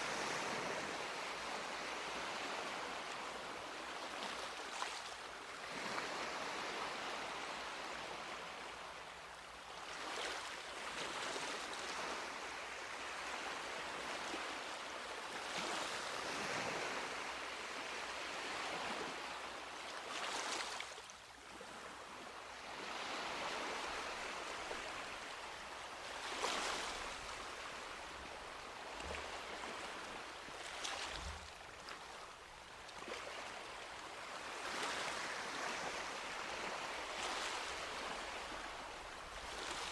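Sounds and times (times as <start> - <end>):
sea waves breaking on beach: 21.7 - 32.2, 32.9 - 39.9.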